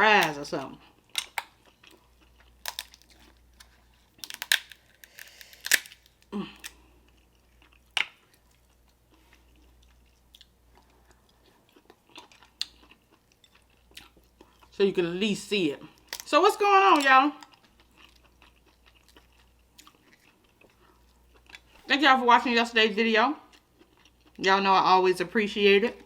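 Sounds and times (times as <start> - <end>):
chewing and biting: 0.8 - 14.8, 17.4 - 21.9, 23.5 - 24.4
shell crunching and clicks: 1.1 - 2.0, 2.6 - 6.8.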